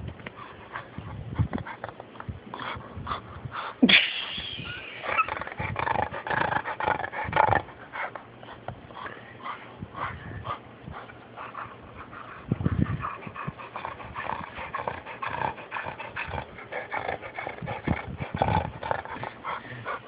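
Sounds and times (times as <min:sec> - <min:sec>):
dog snorting: 0:05.0 - 0:20.0.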